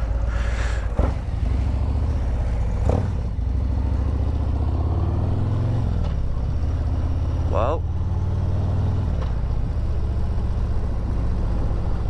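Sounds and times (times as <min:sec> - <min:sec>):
motorcycle engine running: 0:00.0 - 0:04.9.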